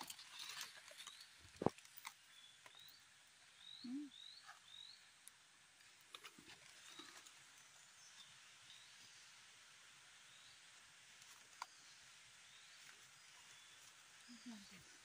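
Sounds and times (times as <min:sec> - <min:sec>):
small bird chirping: 0:00.2 - 0:05.2, 0:11.5 - 0:15.0.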